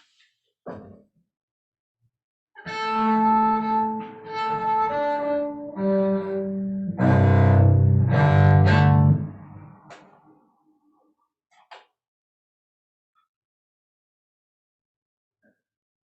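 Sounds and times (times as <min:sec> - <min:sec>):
bowed string instrument: 0:02.6 - 0:09.9.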